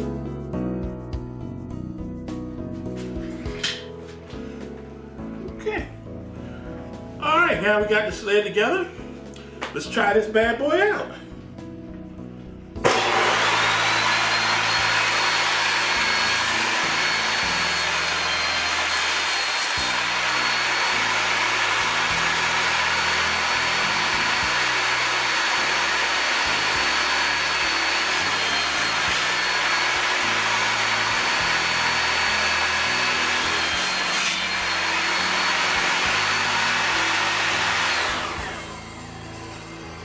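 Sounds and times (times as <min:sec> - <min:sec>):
saw spinning down: 0:12.8 - 0:40.0
table saw whining: 0:12.8 - 0:40.0.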